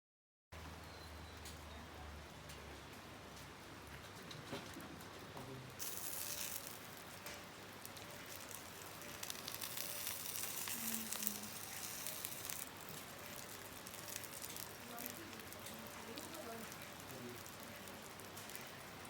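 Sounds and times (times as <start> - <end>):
campfire crackling: 1.4 - 19.0
food sizzling in a pan: 5.7 - 19.0.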